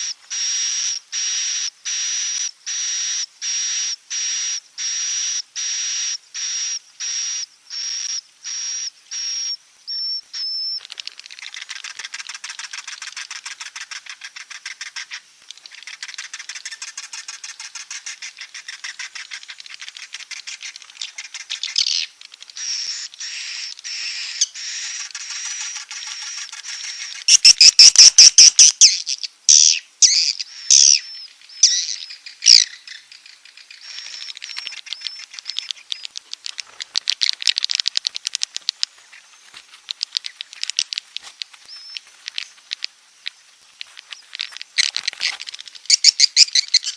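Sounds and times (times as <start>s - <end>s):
buzzy bird chirps: 0.0s - 46.9s
fast chittering of many birds: 10.8s - 46.9s.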